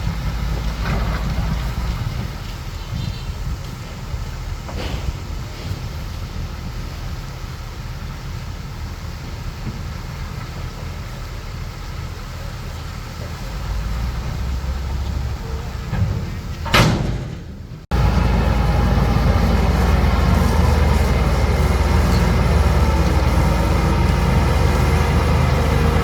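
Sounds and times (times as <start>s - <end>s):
bulldozer diesel engine rumbling: 0.0s - 26.0s.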